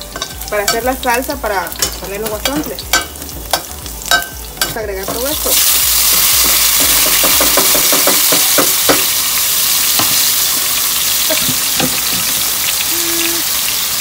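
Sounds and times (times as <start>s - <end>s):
hot oil sizzling in a pot: 0.0s - 14.0s.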